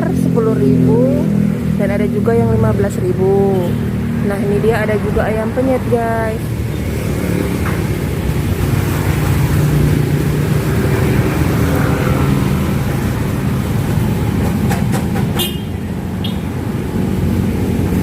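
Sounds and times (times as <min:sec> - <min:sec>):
large vehicle engine passing: 0:00.0 - 0:18.0
road traffic: 0:00.0 - 0:18.0.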